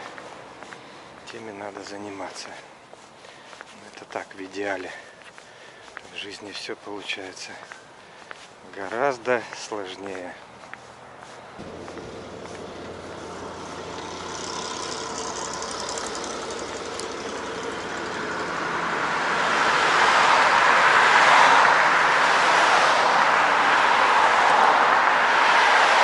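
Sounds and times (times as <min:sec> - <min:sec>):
large vehicle rushing noise: 0:11.6 - 0:26.0.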